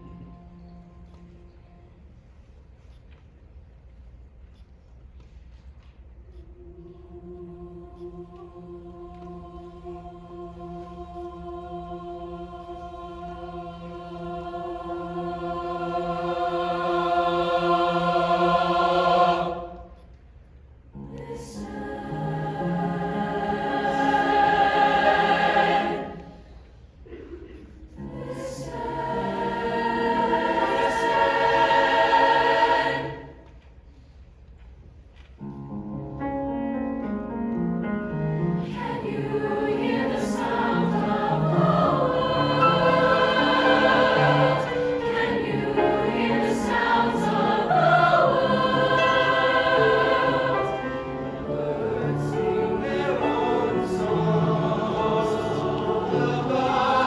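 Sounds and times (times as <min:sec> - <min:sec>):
choir singing in parts: 0:06.6 - 0:20.2, 0:21.0 - 0:27.2, 0:27.9 - 0:33.6, 0:38.6 - 0:57.0.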